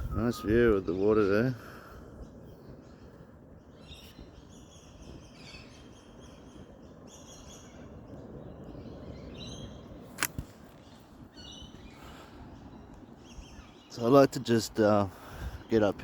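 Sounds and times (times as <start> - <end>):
birds chirping: 0.0 - 16.0
steady outdoor background: 0.0 - 16.0
sharp click: 10.2 - 10.5.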